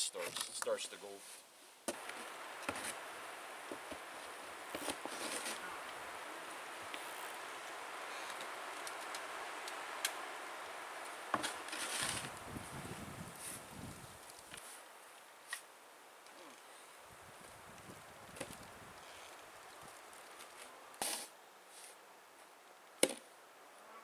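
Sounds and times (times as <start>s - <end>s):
snow shovel scraping snow: 1.2s - 13.8s, 20.6s - 22.0s.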